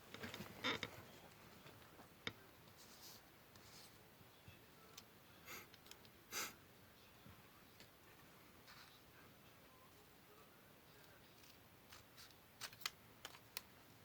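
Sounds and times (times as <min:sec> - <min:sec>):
paper rustling: 0:11.2 - 0:13.7.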